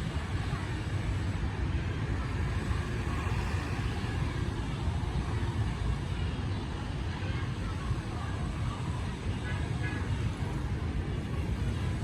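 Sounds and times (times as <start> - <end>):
faint hiss: 0.0 - 10.4
low engine rumble: 0.0 - 12.0.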